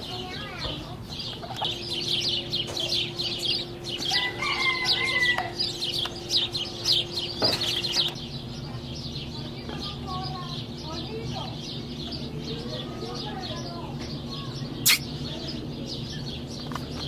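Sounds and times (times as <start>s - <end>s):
birds chirping rapidly: 0.0s - 17.0s
long drawn-out bird call: 1.8s - 7.4s.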